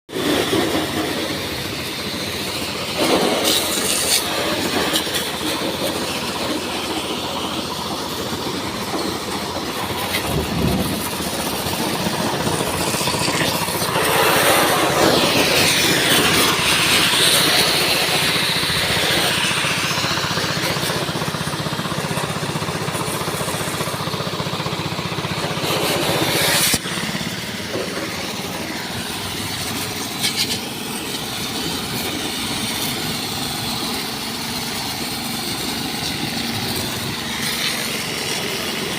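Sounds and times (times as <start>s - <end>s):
heavy machinery clattering: 0.2s - 38.9s.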